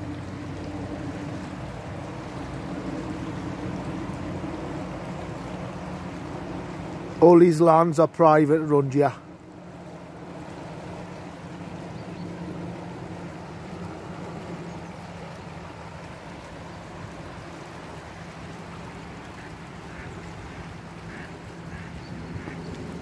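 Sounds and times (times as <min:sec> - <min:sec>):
ducks quacking: 0:19.4 - 0:22.7.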